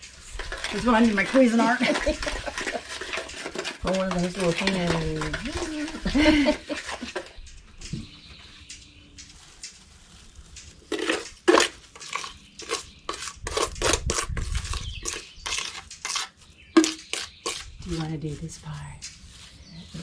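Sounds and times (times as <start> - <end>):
tool scraping cement container: 0.0 - 7.4, 10.9 - 18.7.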